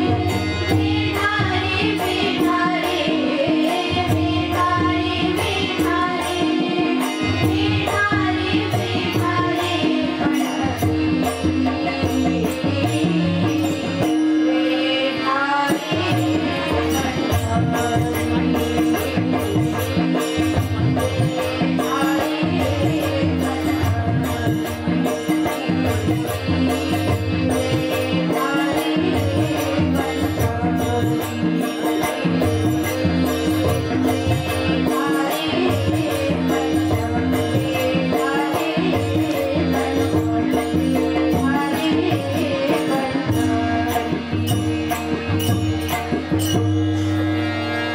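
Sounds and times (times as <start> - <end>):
small hand cymbals: 0.0 - 47.9
drums: 15.7 - 47.2.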